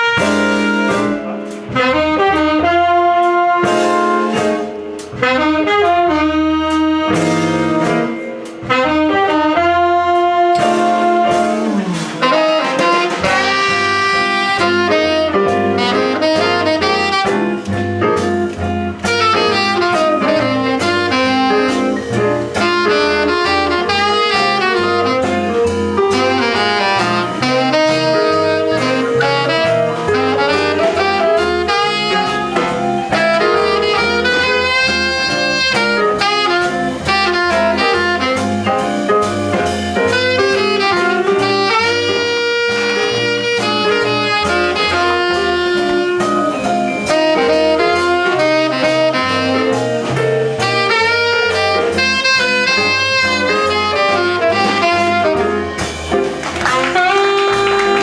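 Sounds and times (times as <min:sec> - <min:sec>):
jazz band accompaniment: 0:00.0 - 0:58.0
saxophone melody: 0:00.0 - 0:58.0
stepping bass line: 0:00.0 - 0:58.0.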